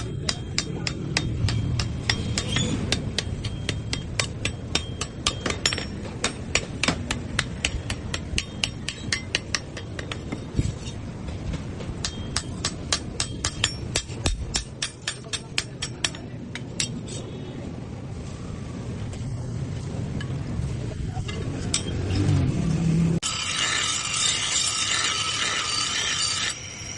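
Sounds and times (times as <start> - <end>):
hammer striking metal on anvil: 0.0 - 17.0, 21.3 - 22.4.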